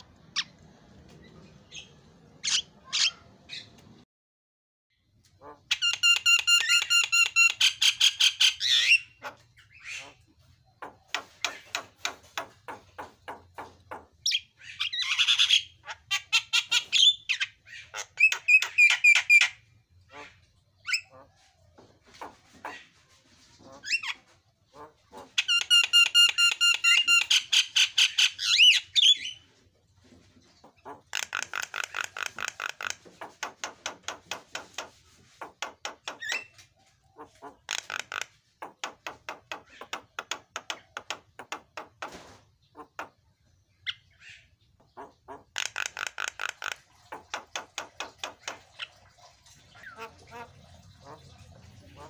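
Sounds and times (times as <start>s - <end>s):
bird harsh chattering: 1.7s - 3.7s.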